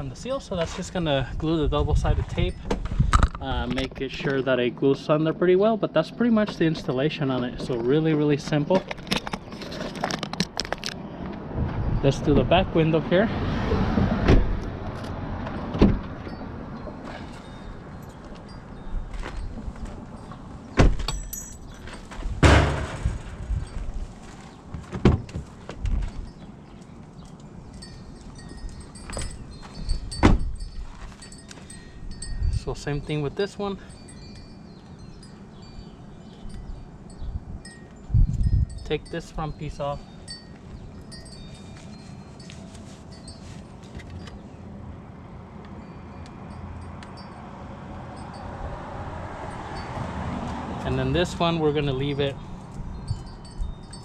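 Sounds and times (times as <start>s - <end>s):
heavy door thump: 14.0s - 14.6s, 20.8s - 21.1s, 22.4s - 23.4s, 24.9s - 25.4s, 30.2s - 30.6s
truck door clunk: 14.0s - 14.6s, 15.4s - 16.4s, 20.7s - 23.5s, 24.8s - 26.0s, 30.1s - 30.6s
light metallic clinks: 21.0s - 22.1s
high ringing tones: 27.2s - 44.4s.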